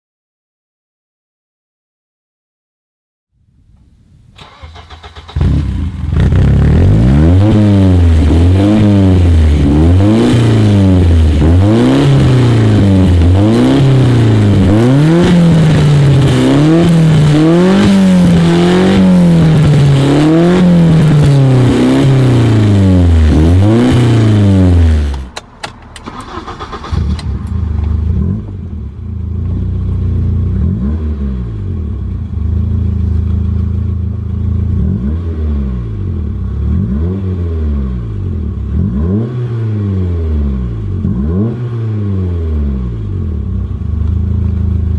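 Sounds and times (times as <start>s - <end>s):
car engine idling: 4.4s - 30.7s, 31.5s - 34.9s
car engine revving: 4.4s - 44.9s.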